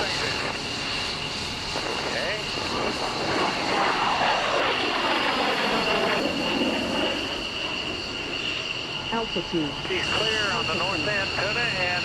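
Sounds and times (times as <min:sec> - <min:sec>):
aircraft flying past: 0:00.0 - 0:12.0
steady high whine: 0:00.0 - 0:12.0.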